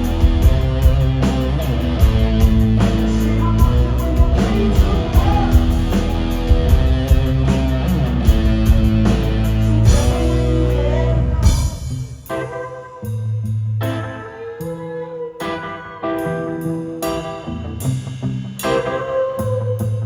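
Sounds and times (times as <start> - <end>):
drum kit steady rhythm: 0.0 - 14.1
electric guitar: 0.0 - 20.0.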